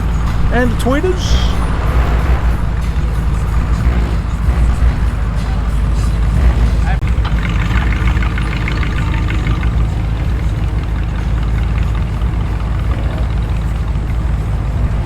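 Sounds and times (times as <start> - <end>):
car engines idling: 0.0 - 15.0.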